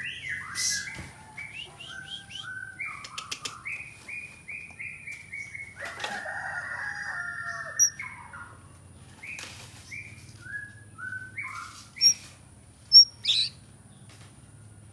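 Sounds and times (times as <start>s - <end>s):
bird singing varied song: 0.0s - 6.0s, 7.0s - 12.3s, 12.9s - 13.6s.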